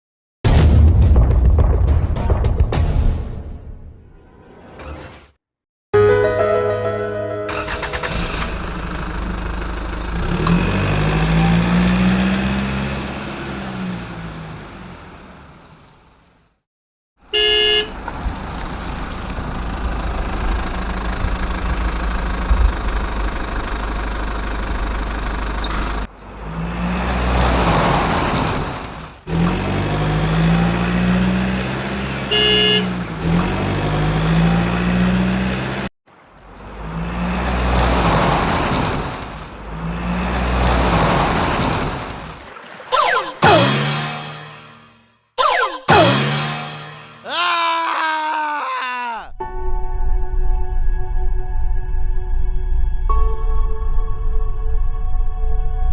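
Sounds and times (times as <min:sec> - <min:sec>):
vehicle engine revving: 0:07.5 - 0:16.1, 0:17.8 - 0:35.9, 0:36.5 - 0:44.9
short horn toot: 0:17.4 - 0:17.9, 0:32.3 - 0:33.0.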